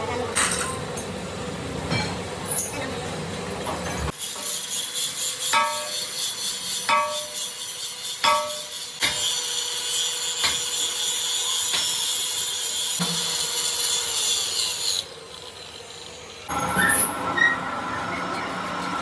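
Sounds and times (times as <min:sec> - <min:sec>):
high scraping hiss of metal: 0:04.1 - 0:17.2.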